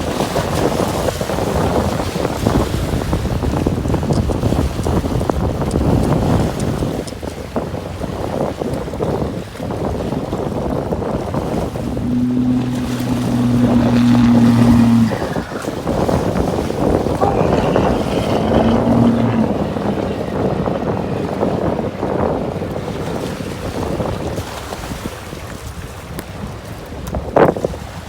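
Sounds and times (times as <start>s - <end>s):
wind buffeting microphone: 0.0s - 28.0s
low motor hum: 11.2s - 24.9s.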